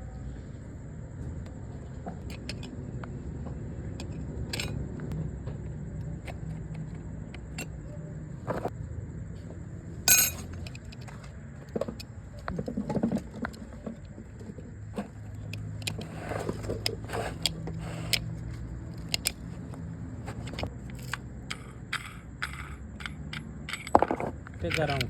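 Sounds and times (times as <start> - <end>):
metallic clicks and clinks: 10.1 - 11.0, 20.7 - 25.0.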